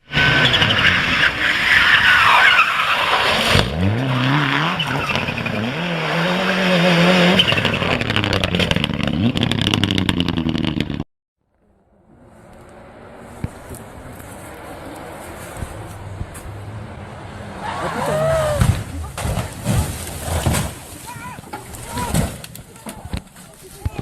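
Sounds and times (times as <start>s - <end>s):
race car engine revving: 0.0s - 11.0s, 12.0s - 21.0s
tyres squealing in a skid: 0.1s - 8.6s, 17.3s - 23.6s.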